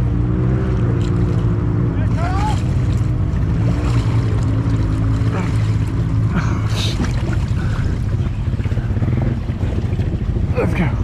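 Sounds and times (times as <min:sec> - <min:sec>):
vehicle engine idling: 0:04.2 - 0:11.0.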